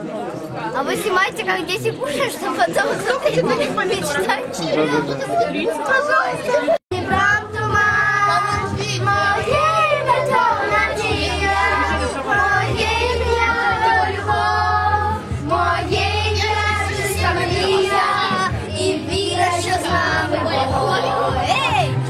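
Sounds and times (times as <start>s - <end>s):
children singing: 6.9s - 22.0s
music with steady bass: 6.9s - 22.0s.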